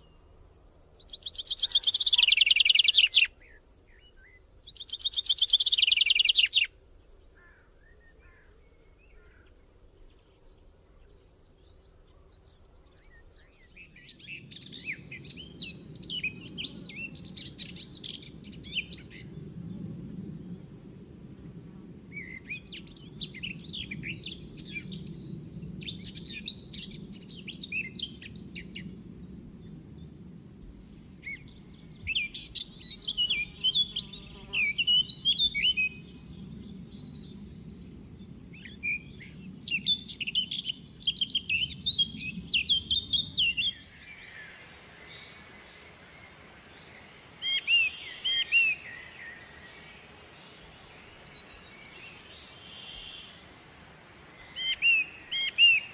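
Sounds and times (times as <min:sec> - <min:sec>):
songbirds chirping: 0:00.0 - 0:55.9
even hiss: 0:43.3 - 0:55.9.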